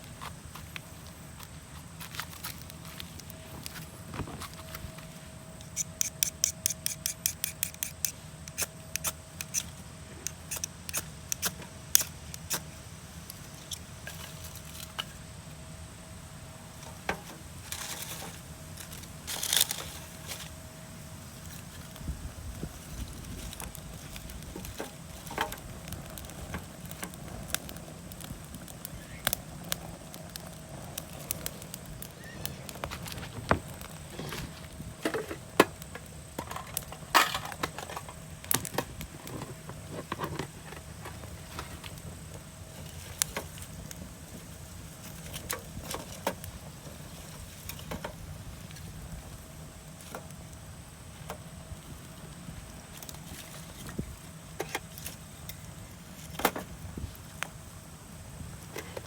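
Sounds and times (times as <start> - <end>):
rustle: 0.0 - 59.0.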